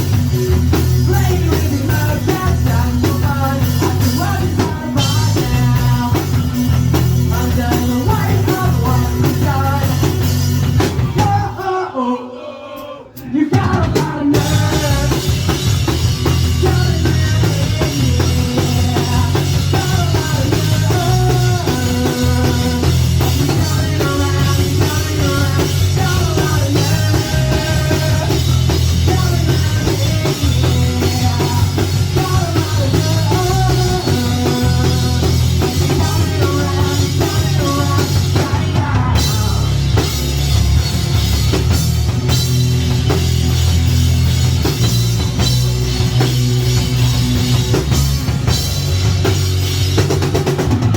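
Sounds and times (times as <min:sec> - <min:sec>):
rock band playing: 0:00.0 - 0:11.7, 0:13.1 - 0:50.9.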